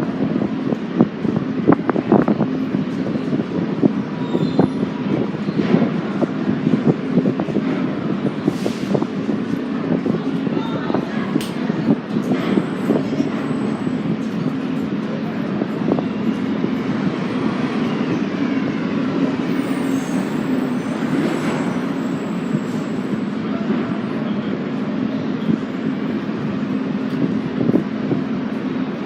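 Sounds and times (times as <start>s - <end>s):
subway train rumbling on track: 0.0s - 29.0s.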